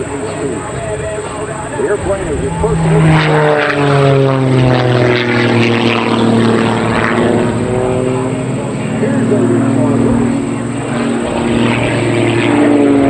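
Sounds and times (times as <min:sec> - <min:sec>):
propeller plane passing by: 0:00.0 - 0:13.0.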